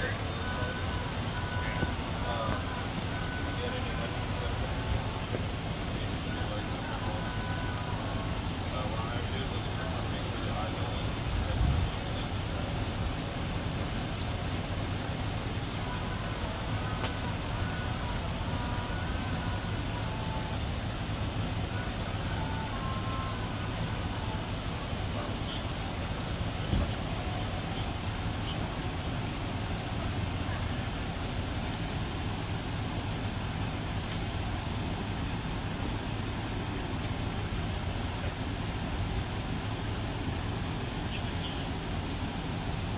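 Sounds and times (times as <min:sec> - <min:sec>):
car road and engine noise: 0:00.0 - 0:42.9
motor vehicle rumble: 0:00.0 - 0:42.9
faint click: 0:17.0 - 0:17.2.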